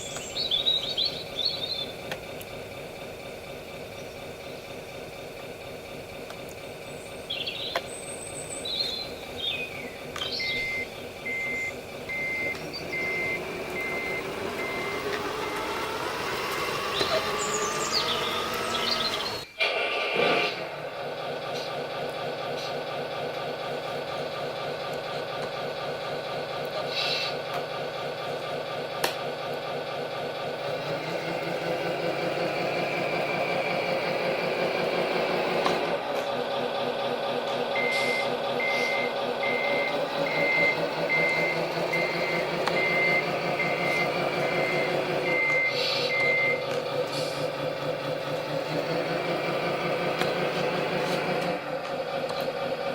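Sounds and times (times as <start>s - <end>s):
simulated truck engine: 0.0s - 52.9s
reversing beeper: 10.2s - 19.4s, 37.7s - 47.4s.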